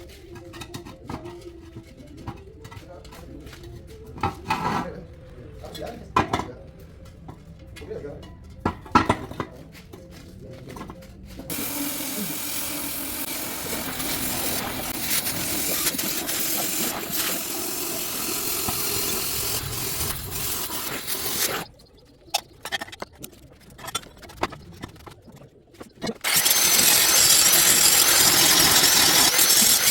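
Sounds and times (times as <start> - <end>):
power tool hissing: 11.5 - 21.7, 26.2 - 29.9.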